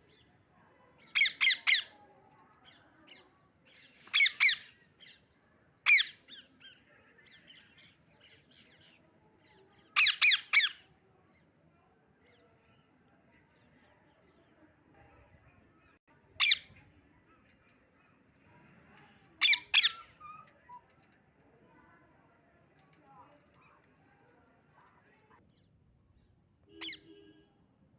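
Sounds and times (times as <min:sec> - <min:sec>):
soft parrot chirps: 0:01.0 - 0:02.0, 0:03.9 - 0:05.2, 0:05.9 - 0:09.0, 0:10.0 - 0:10.8, 0:19.4 - 0:21.0, 0:26.7 - 0:27.2
parrot sharp calls: 0:19.4 - 0:20.5, 0:26.7 - 0:27.2.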